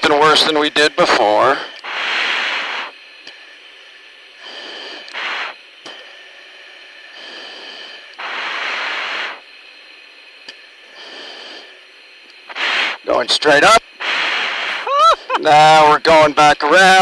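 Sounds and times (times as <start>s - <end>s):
steady intercom hiss: 0.0s - 17.0s
heavy breathing through oxygen mask: 1.4s - 3.0s, 4.4s - 9.5s, 10.8s - 16.0s.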